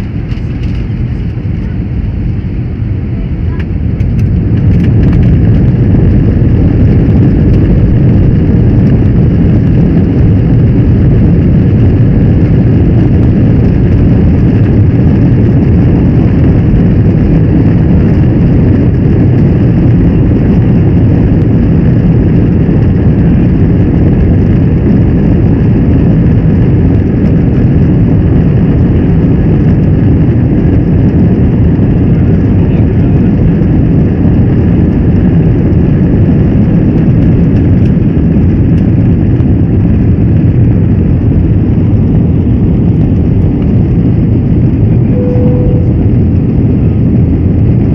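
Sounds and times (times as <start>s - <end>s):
jet engine cabin rumble: 0.0s - 47.9s
faint whining tones: 45.1s - 46.3s.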